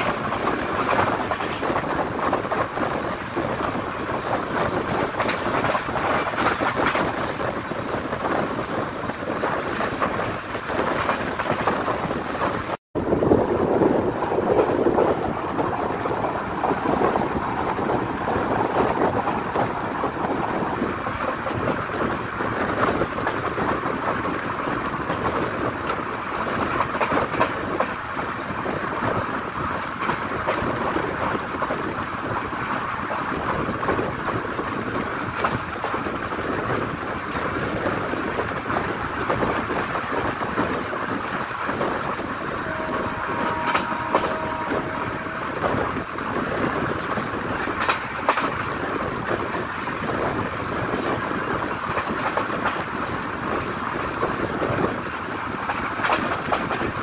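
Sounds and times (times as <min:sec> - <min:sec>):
train wheels rumbling on rails: 0:00.0 - 0:57.0
wind rushing: 0:00.0 - 0:57.0
two-note tone: 0:42.7 - 0:45.5.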